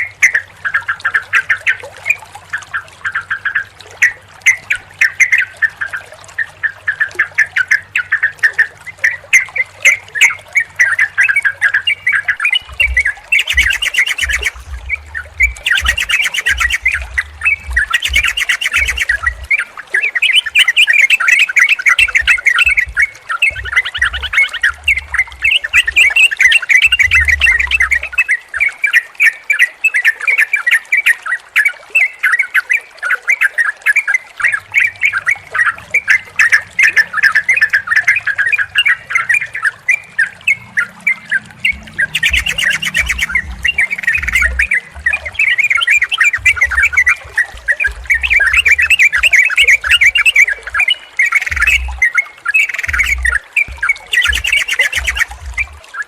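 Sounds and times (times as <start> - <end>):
bulbuls chattering: 6.9 - 28.2, 34.4 - 56.0.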